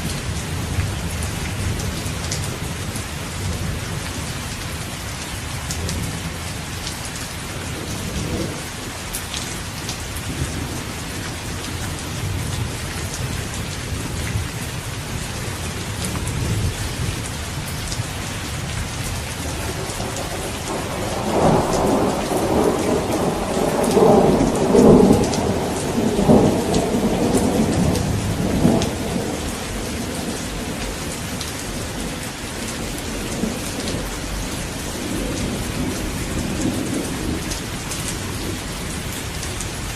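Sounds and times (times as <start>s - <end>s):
heavy rain: 0.0s - 39.9s
rolling thunder: 19.4s - 38.9s.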